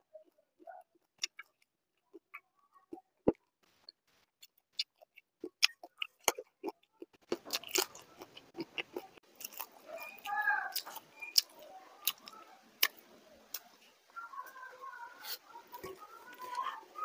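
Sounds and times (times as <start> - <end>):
wet chewing and lip smacks: 0.6 - 13.9
crunching while eating: 4.2 - 13.9, 15.2 - 17.0.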